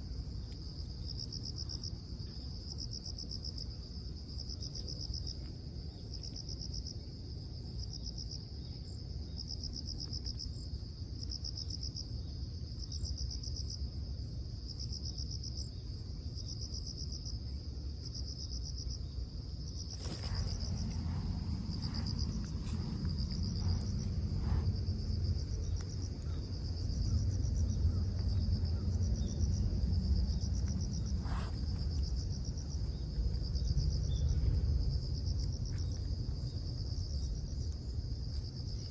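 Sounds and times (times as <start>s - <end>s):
insects chirping: 0.0s - 38.9s
low rumble: 19.6s - 36.6s.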